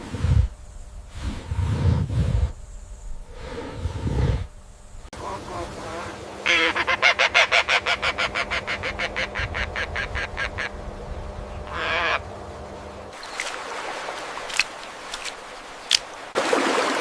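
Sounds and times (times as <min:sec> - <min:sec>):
animal calling in pulses: 0:11.6 - 0:12.3.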